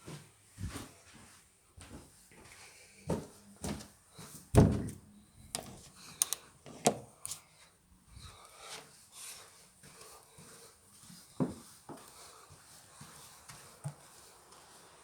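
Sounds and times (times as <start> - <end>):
sharp clicks: 5.6 - 6.4.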